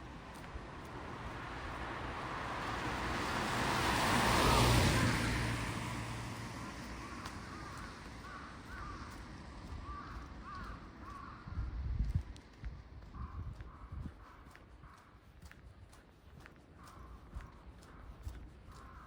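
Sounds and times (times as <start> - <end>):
car passing by: 0.0 - 9.6
crows cawing: 6.6 - 11.6, 13.0 - 15.2, 16.8 - 19.0.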